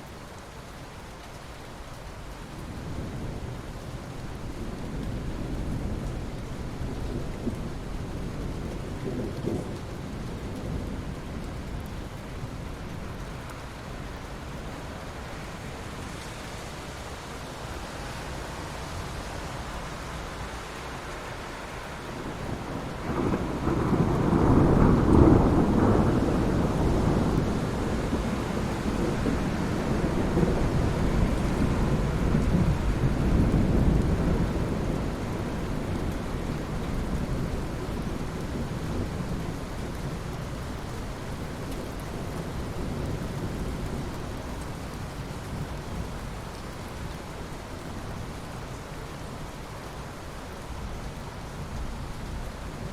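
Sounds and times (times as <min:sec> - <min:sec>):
steady rain falling: 0:00.0 - 0:52.9
low thunder rumble: 0:04.5 - 0:13.1, 0:22.2 - 0:44.5.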